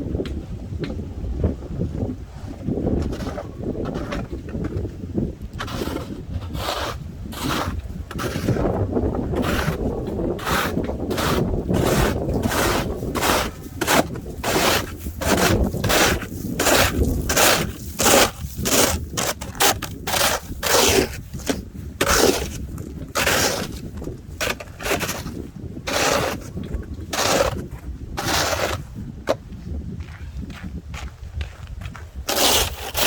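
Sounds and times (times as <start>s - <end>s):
wind rumble on microphone: 0.0s - 33.0s
footsteps crunching in snow: 9.4s - 33.0s.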